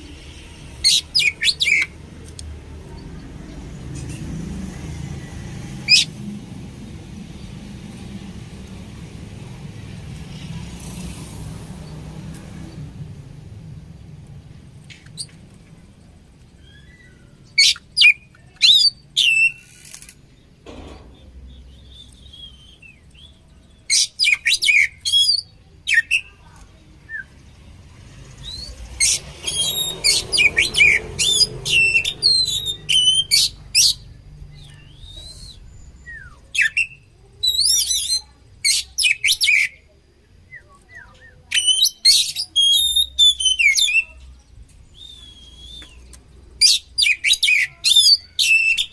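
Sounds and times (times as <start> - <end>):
bird singing high whistles: 16.6 - 19.6, 21.6 - 23.4, 28.4 - 34.0, 34.8 - 38.2, 40.5 - 44.2, 44.9 - 48.9.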